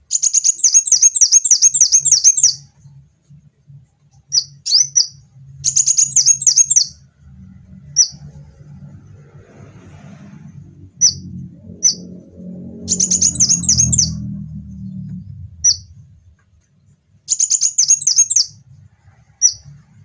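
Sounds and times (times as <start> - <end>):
bird trilling chirps: 0.1 - 2.7, 4.3 - 7.0, 7.9 - 8.3, 11.0 - 16.0, 17.3 - 18.6, 19.4 - 19.8
faint low hum: 1.6 - 20.0.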